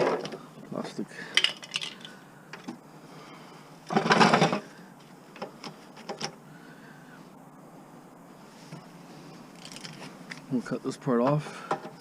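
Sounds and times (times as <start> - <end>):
parts clattering: 1.2 - 2.8, 3.8 - 6.4
plastic pieces knocking and clicking: 1.4 - 2.1.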